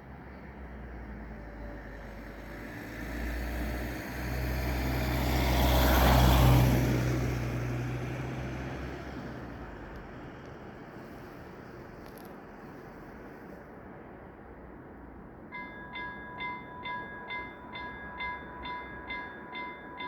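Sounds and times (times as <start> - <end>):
vehicle passing by: 0.0 - 12.0.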